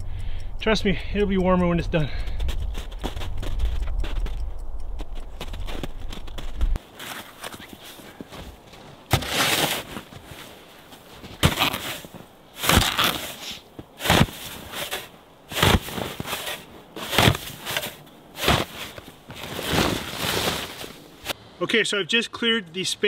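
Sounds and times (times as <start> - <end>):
snow shovel scraping snow: 6.9 - 8.5, 9.1 - 21.4.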